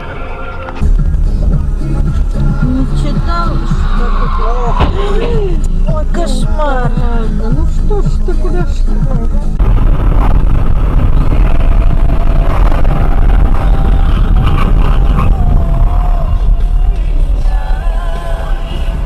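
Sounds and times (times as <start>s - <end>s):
car radio music: 0.0s - 9.6s
car cabin road rumble: 0.0s - 19.0s.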